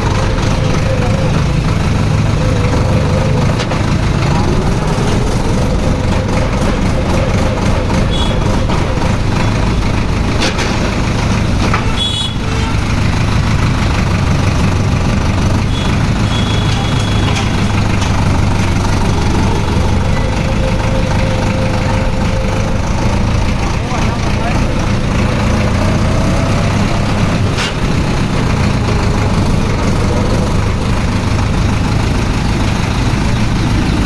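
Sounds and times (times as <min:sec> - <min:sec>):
tractor diesel engine running: 0:00.0 - 0:34.0
short high-pitched tones: 0:19.0 - 0:24.9.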